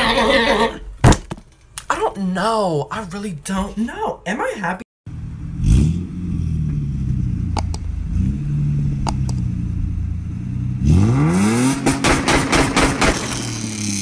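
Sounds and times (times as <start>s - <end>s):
car engine revving: 5.1s - 14.0s
sharp clicks: 7.6s - 7.9s, 9.0s - 9.5s.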